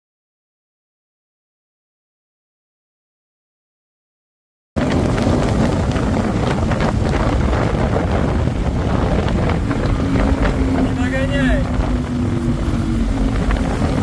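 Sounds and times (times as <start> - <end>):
motorboat rushing through water: 4.8 - 14.0
wind buffeting microphone: 4.8 - 14.0.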